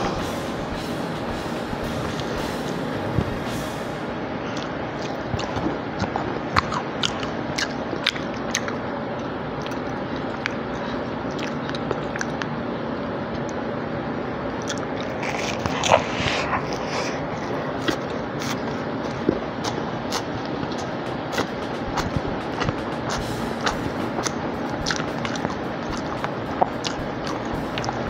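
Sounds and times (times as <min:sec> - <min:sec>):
steady background hiss: 0:00.0 - 0:06.0, 0:12.5 - 0:28.0
crisp chewing crunches: 0:04.5 - 0:12.5
wet mouth clicks: 0:04.6 - 0:12.5, 0:14.6 - 0:28.0.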